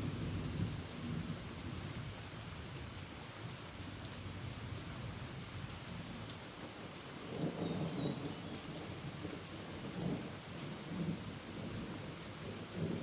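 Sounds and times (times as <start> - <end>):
heavy rain on a tin roof: 0.0 - 13.0
low thunder rumble: 7.3 - 13.0.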